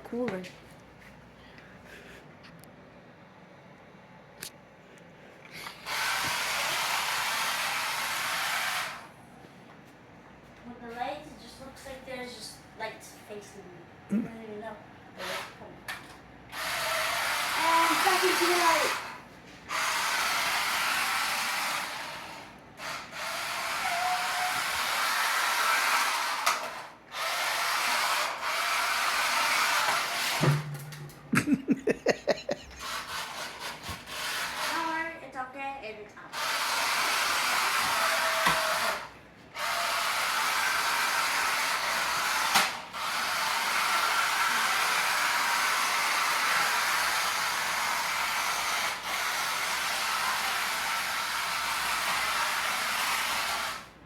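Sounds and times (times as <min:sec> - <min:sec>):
electric motor whirring: 0:16.5 - 0:30.4, 0:36.3 - 0:53.9
rc car tires sliding on floor: 0:32.8 - 0:35.0, 0:40.1 - 0:53.9.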